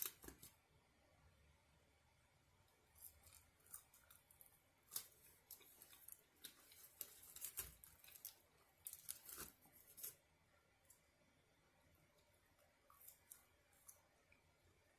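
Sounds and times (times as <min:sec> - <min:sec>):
food packaging being handled: 0:03.0 - 0:10.2.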